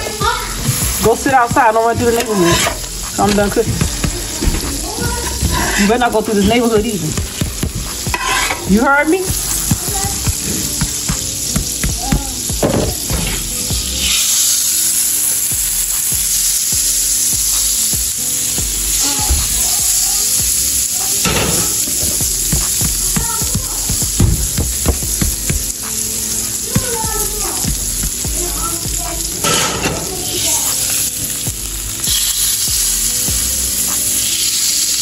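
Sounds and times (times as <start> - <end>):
pancakes sizzling on griddle: 0.0 - 35.0
metal spatula scraping and tapping: 1.9 - 4.7, 6.4 - 8.7.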